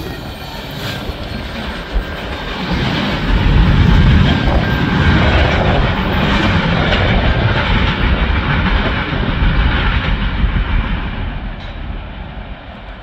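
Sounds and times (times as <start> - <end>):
freight cars rumbling over rails: 0.0 - 13.0.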